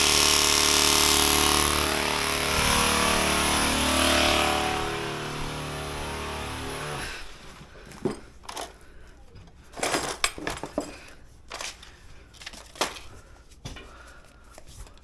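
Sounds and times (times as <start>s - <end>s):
power tool running: 0.0s - 7.6s.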